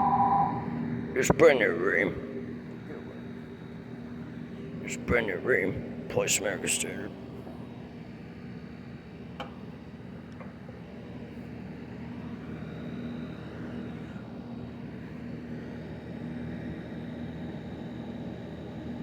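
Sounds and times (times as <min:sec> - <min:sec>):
faint high whine: 0:00.0 - 0:02.0
heat pump fan and compressor hum: 0:00.0 - 0:19.0.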